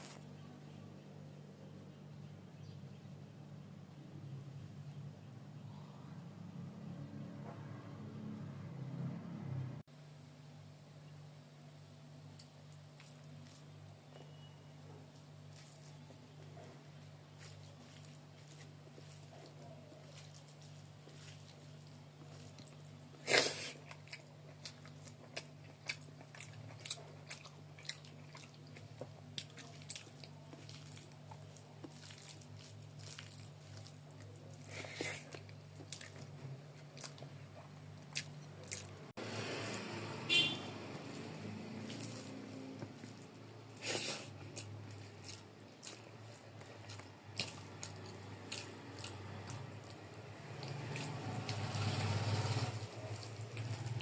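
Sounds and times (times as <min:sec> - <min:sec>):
chewing and mouth smacks: 0:12.4 - 0:14.4, 0:15.1 - 0:39.1, 0:41.0 - 0:52.0.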